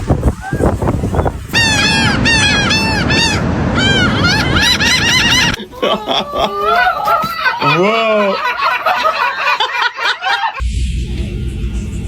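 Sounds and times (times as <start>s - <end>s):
steady low noise: 1.4s - 5.6s, 10.6s - 12.0s
seagull yelping calls: 1.6s - 5.6s.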